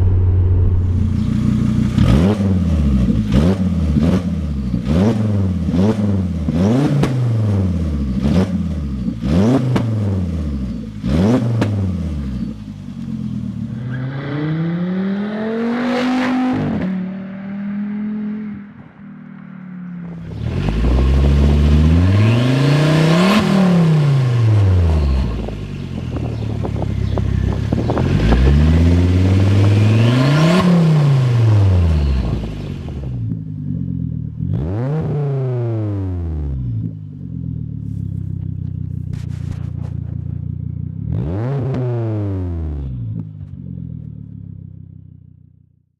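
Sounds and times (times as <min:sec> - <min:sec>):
car engine revving: 0:00.0 - 0:44.6
exhaust crackles and pops: 0:37.8 - 0:41.8.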